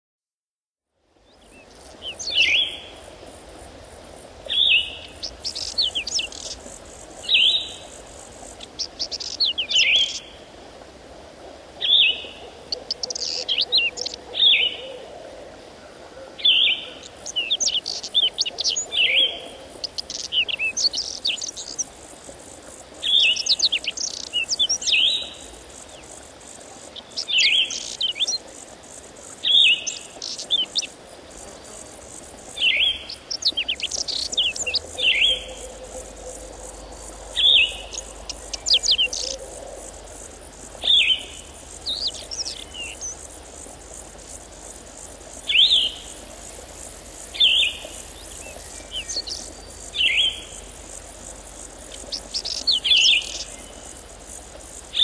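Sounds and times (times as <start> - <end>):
faint high hiss: 0.9 - 55.0
songbird singing: 1.2 - 10.4, 11.8 - 55.0.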